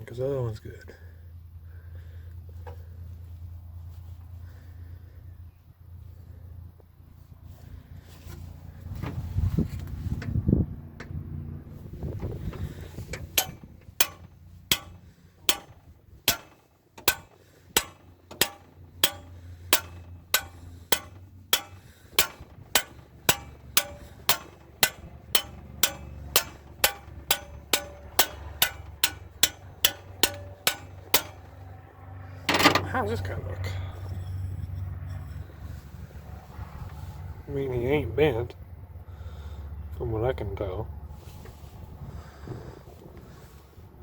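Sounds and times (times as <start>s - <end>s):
low steady hum: 0.0s - 44.0s
hand tool metallic clicks: 13.1s - 31.5s.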